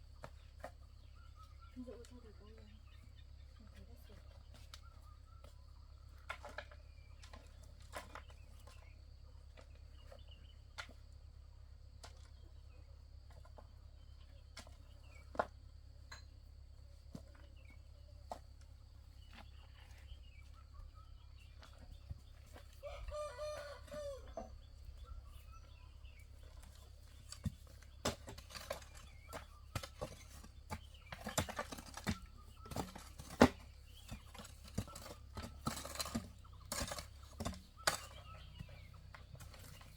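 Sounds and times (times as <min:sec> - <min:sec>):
rooster crowing: 0:22.8 - 0:24.5.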